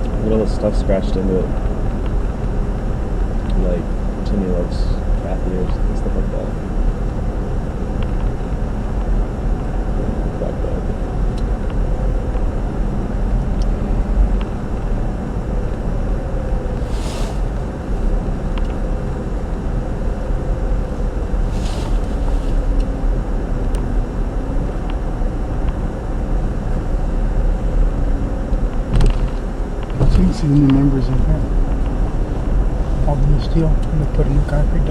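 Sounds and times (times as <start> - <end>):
car cabin road rumble: 0.0 - 34.9
short hissing swishes: 16.8 - 17.5, 21.5 - 22.7.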